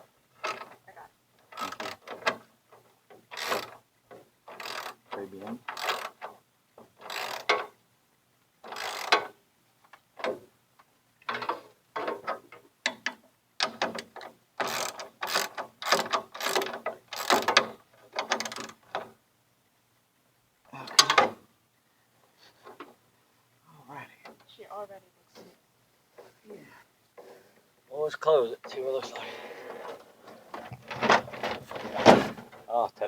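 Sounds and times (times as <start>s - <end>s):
hand ratchet clicking: 1.5s - 2.4s, 3.3s - 3.8s, 4.5s - 6.3s, 7.0s - 7.7s, 8.6s - 9.3s, 14.6s - 18.8s.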